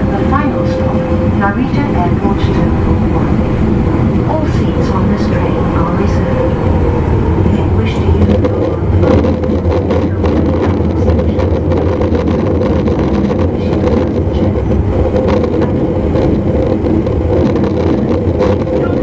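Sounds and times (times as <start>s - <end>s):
drive motor hum: 0.0s - 19.0s
train running gear rumble: 0.0s - 19.0s.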